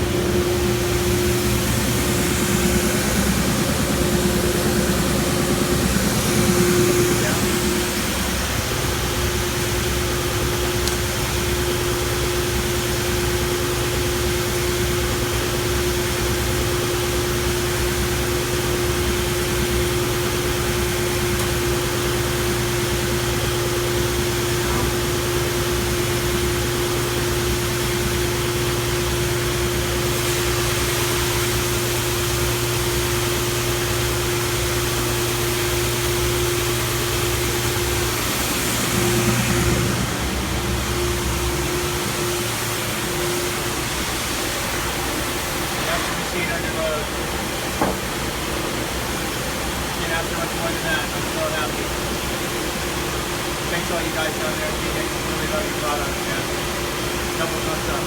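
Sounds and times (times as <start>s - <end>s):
belt sander humming: 0.0s - 46.3s
dust collector air rushing: 0.0s - 58.0s.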